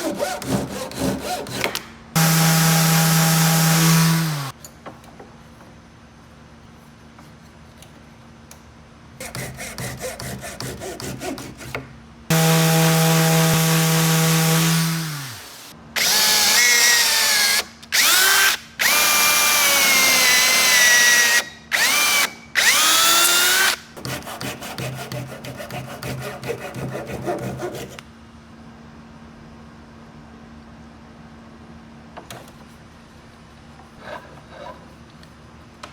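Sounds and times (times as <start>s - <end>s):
hand saw sawing wood: 0.0s - 4.5s, 9.2s - 15.7s, 21.9s - 28.0s
drill running: 2.2s - 4.5s, 12.3s - 23.8s
power tool motor running: 2.2s - 4.5s, 12.3s - 23.8s.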